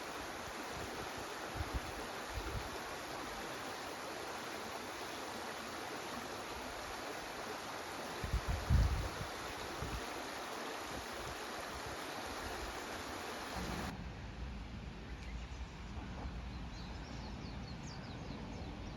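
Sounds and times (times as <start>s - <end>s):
stream babbling over stones: 0.0s - 13.9s.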